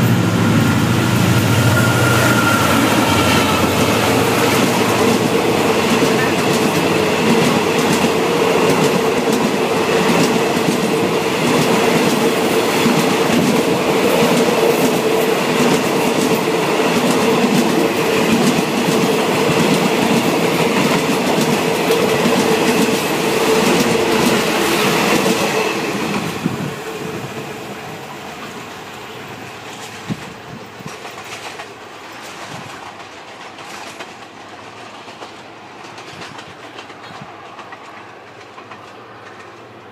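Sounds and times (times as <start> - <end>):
steady tone: 0.0 - 6.4
train wheels clattering over rails: 0.0 - 27.5, 29.6 - 39.9.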